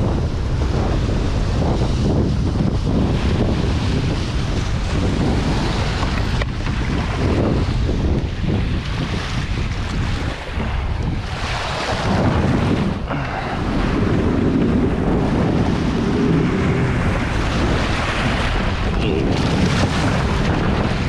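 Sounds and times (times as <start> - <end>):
wind buffeting microphone: 0.0 - 21.0
lake water sloshing: 3.2 - 14.0.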